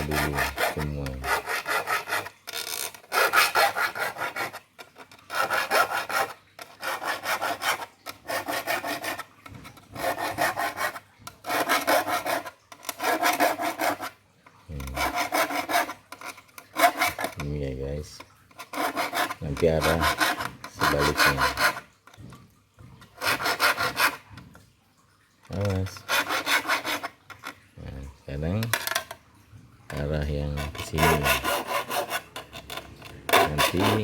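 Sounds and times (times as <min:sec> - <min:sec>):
file rasping on saw teeth: 0:00.0 - 0:04.6, 0:05.3 - 0:14.2, 0:14.8 - 0:17.5, 0:18.6 - 0:21.9, 0:23.2 - 0:24.3, 0:25.6 - 0:27.6, 0:30.5 - 0:34.0.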